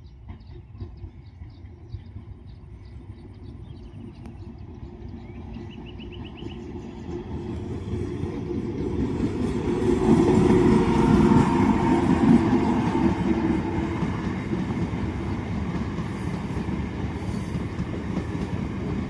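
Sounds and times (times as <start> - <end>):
train rumbling on rails: 0.0 - 19.0.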